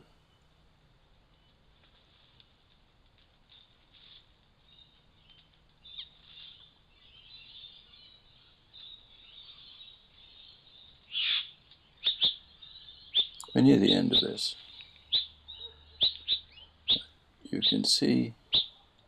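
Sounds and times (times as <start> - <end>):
faint bird chirps: 1.2 - 2.7, 3.4 - 19.0.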